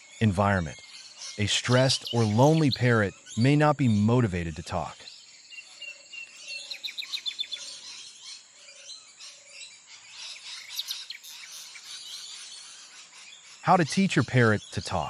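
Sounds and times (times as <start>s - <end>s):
birds chirping: 0.0s - 15.0s
faint low bird call: 1.3s - 3.5s.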